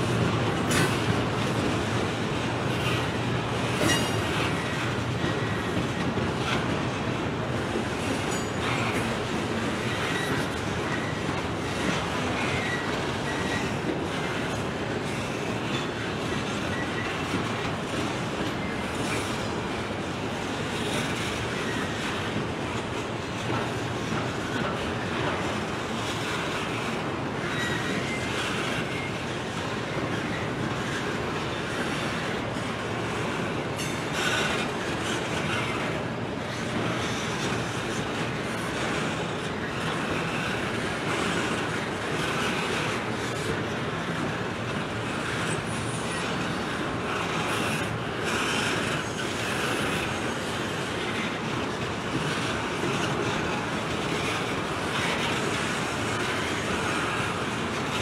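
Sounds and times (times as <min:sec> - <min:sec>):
railroad cars rumbling on rail: 0:00.0 - 0:58.0
train clatter: 0:00.0 - 0:58.0
wheel squeals: 0:09.7 - 0:13.8, 0:27.4 - 0:29.2.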